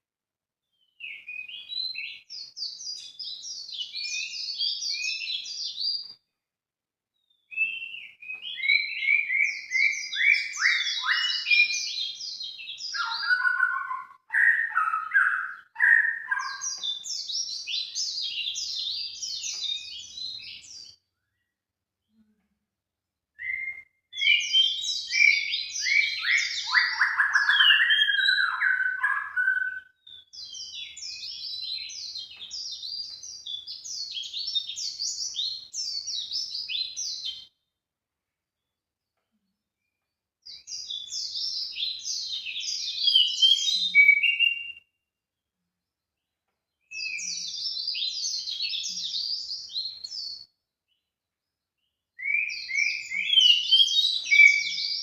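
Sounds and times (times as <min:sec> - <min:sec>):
songbird chirps and twitters: 0:00.6 - 0:06.4, 0:07.1 - 0:22.3, 0:23.4 - 0:37.8, 0:38.5 - 0:55.0.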